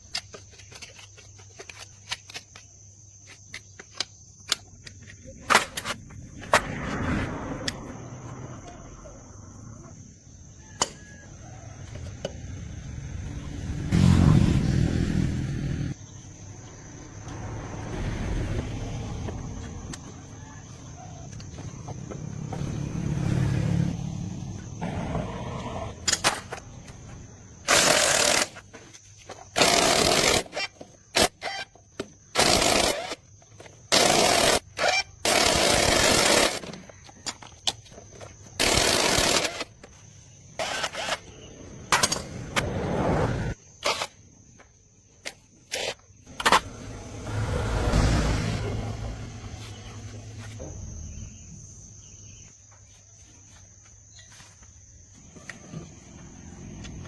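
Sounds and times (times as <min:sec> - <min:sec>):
power tool bursts: 0:27.7 - 0:28.6, 0:29.6 - 0:31.6, 0:32.4 - 0:33.2, 0:38.6 - 0:39.7.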